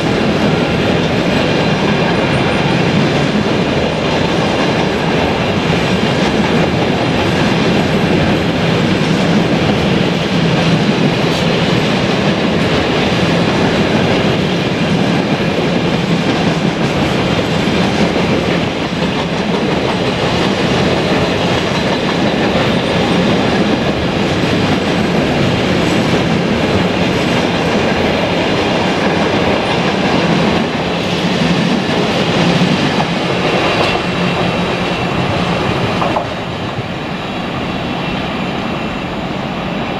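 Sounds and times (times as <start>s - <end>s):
train wheels on rails: 0.0s - 39.9s.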